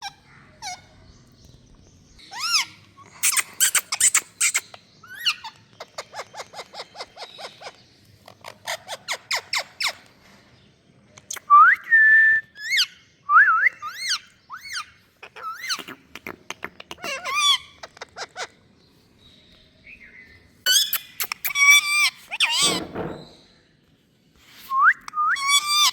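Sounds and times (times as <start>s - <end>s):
parakeet chattering: 14.0s - 18.6s, 20.7s - 23.4s.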